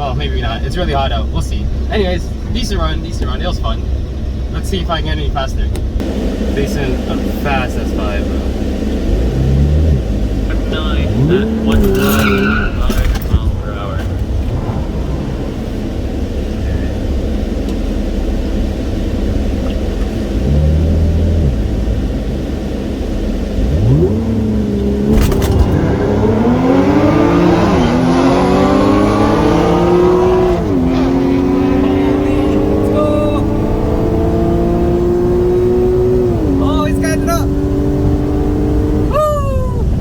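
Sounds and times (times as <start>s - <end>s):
car accelerating with gear shifts: 0.0s - 40.0s
car engine idling and revving: 0.0s - 40.0s.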